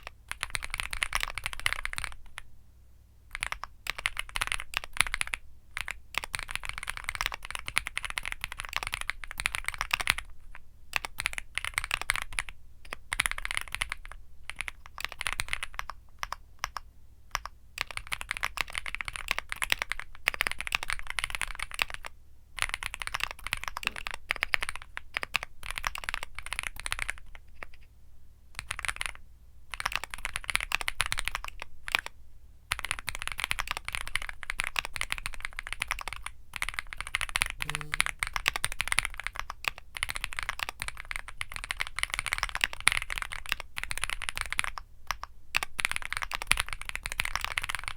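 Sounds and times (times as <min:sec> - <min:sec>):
mechanical keyboard typing: 0:00.0 - 0:02.4, 0:03.3 - 0:10.3, 0:11.0 - 0:27.8, 0:28.6 - 0:32.1, 0:32.7 - 0:47.9.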